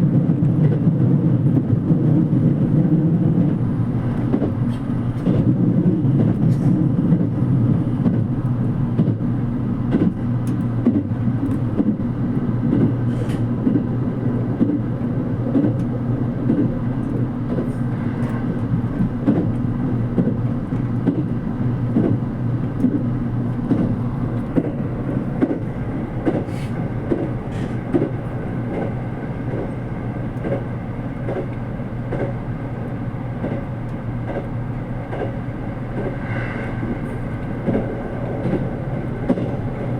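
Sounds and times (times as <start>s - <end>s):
train low rumble: 0.0s - 39.9s.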